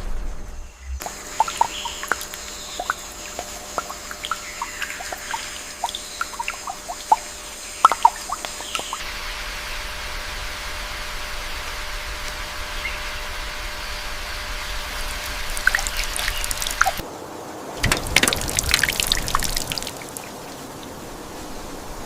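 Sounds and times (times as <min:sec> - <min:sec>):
even hiss: 0:00.0 - 0:10.5
water dripping: 0:01.0 - 0:09.0, 0:15.2 - 0:17.1, 0:17.8 - 0:21.0.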